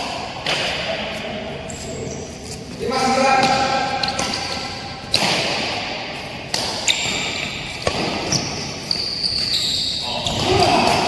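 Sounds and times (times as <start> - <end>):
racket hitting shuttlecock: 0.0 - 1.2, 3.4 - 9.5.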